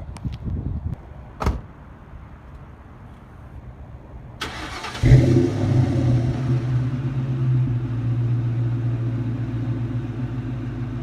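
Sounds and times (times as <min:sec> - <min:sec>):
engine cranking: 0:04.4 - 0:05.3.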